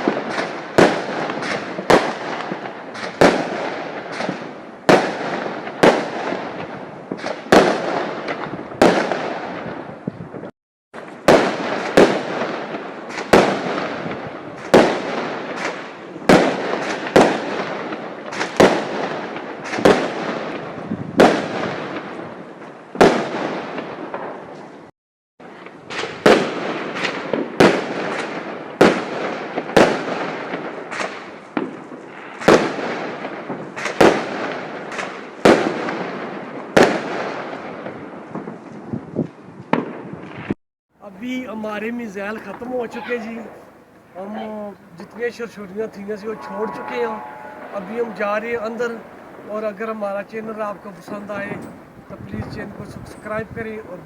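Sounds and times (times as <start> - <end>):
fireworks exploding: 0.0 - 24.8, 25.4 - 54.0.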